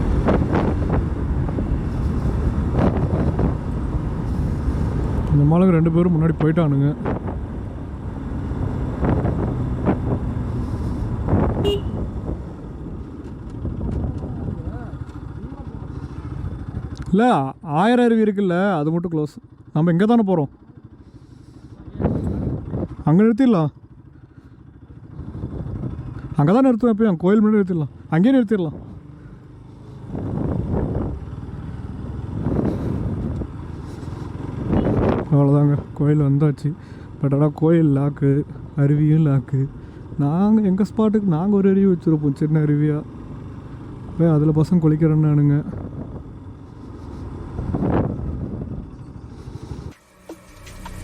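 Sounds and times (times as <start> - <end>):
wind on microphone: 0.0 - 3.7
motorcycle engine running: 0.0 - 51.0
road noise: 0.0 - 51.0
short horn toot: 11.6 - 12.1.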